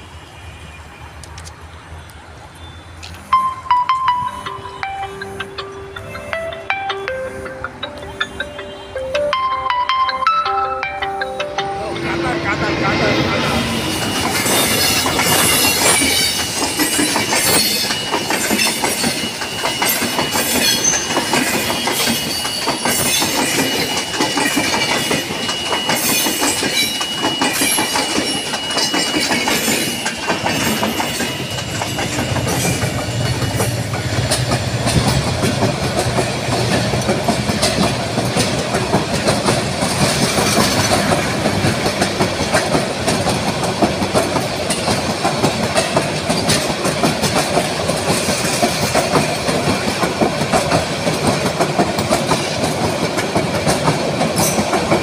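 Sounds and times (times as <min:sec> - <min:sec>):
train wheels clacking over rail joints: 0:13.4 - 0:55.0.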